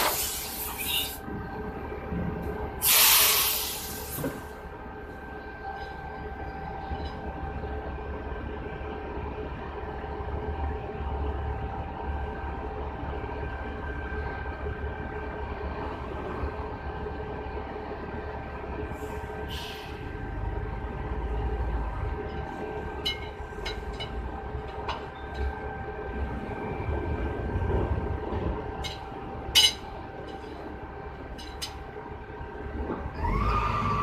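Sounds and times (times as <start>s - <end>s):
machine drone with low rumble: 0.0s - 34.0s
air hiss: 2.8s - 4.2s.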